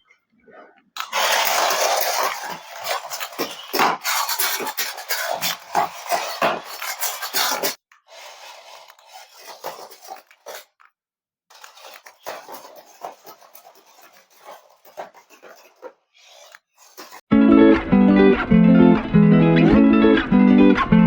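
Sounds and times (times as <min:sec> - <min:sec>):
rustling and scraping: 0:00.5 - 0:10.9, 0:11.5 - 0:17.3.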